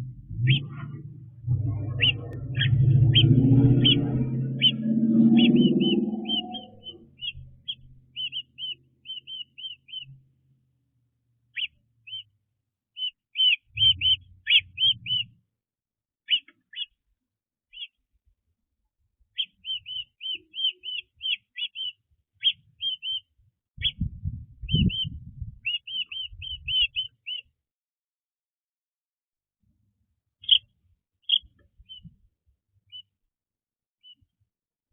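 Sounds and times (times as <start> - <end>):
low rumbling bumps: 0.0 - 8.0
small birds chirping: 0.0 - 10.3, 11.5 - 15.4, 16.3 - 17.0, 17.7 - 18.0, 19.3 - 27.5, 30.4 - 32.2, 32.9 - 33.1, 34.0 - 34.3.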